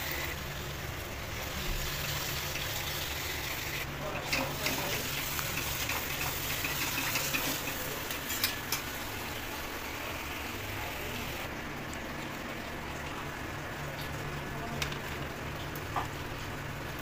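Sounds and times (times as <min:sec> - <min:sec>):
spices sizzling in a pan: 0:00.0 - 0:11.5.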